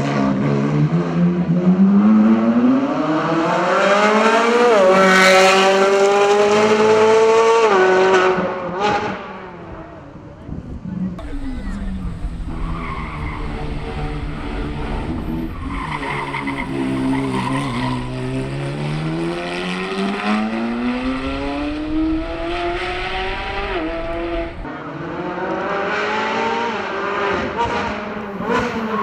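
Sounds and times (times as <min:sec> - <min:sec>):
tyre squeal: 0:11.2 - 0:19.1
sports car engine revving: 0:11.2 - 0:28.7.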